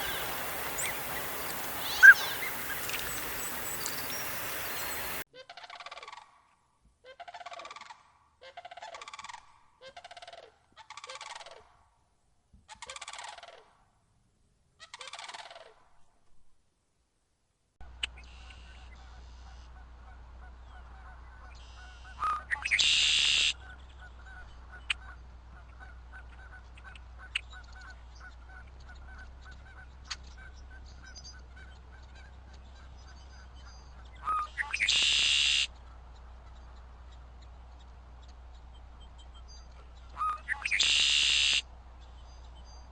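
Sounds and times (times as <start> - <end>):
large birds calling: 0.0 - 5.2
steady low hum: 0.0 - 5.2.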